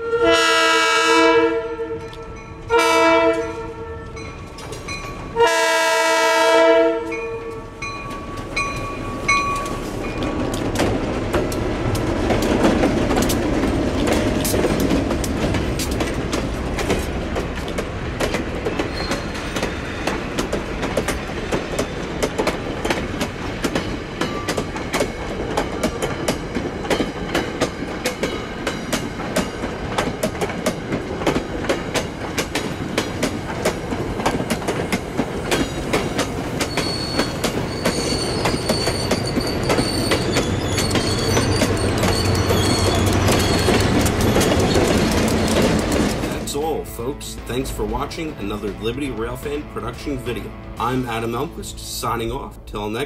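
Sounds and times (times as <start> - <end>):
wheels clicking over rail joints: 7.5 - 46.5
diesel locomotive rumble: 7.5 - 53.0
high wheel squeal: 18.8 - 20.2, 36.6 - 45.0.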